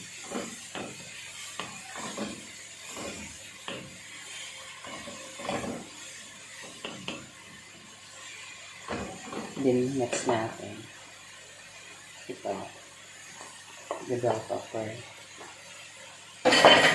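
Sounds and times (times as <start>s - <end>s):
spatula scraping a frying pan: 0.0s - 7.4s.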